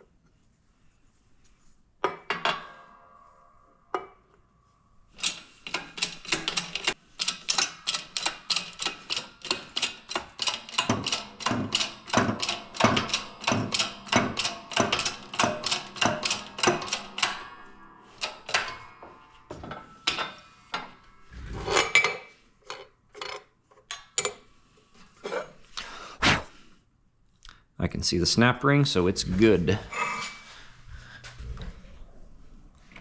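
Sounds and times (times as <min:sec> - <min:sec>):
sharp metal knocks: 0:05.2 - 0:22.3.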